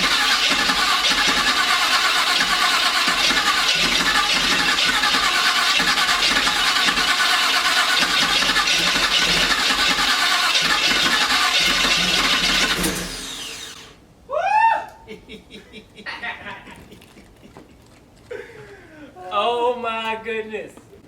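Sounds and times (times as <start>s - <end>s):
engine cranking on starter: 0.0s - 14.0s.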